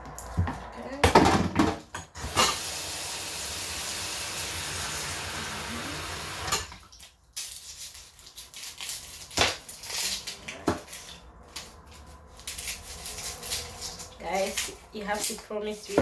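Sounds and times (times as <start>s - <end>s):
onion skins crackling: 6.8s - 16.0s
knife peeling onion skins: 7.0s - 16.0s.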